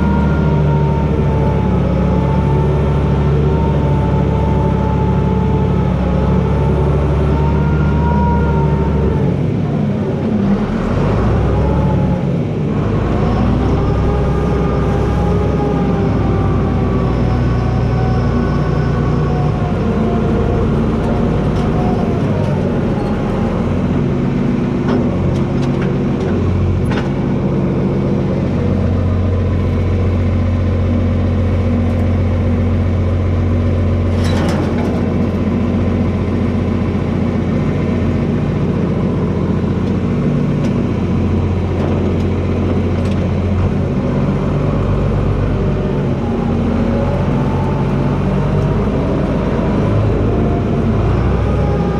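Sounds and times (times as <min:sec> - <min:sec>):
tractor diesel engine running hard: 0:00.0 - 0:51.9.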